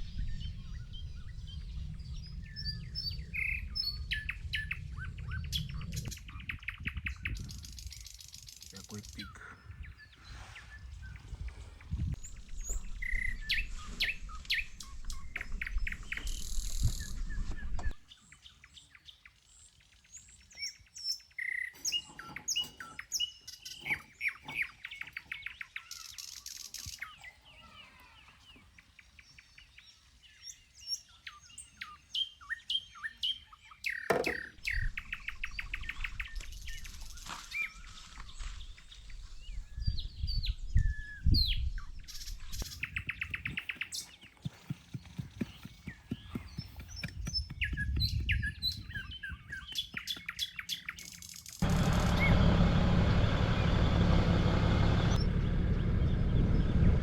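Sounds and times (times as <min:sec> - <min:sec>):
low rumble: 0:00.0 - 0:06.3, 0:51.6 - 0:57.0
wild birds chirping: 0:00.0 - 0:57.0.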